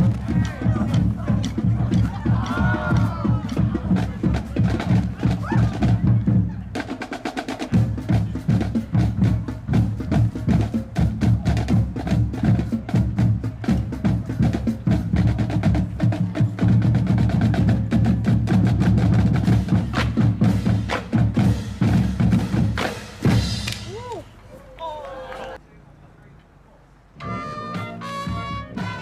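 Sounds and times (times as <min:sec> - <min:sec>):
rapid drum strokes: 0:00.0 - 0:24.1
low drum beat: 0:00.0 - 0:24.3.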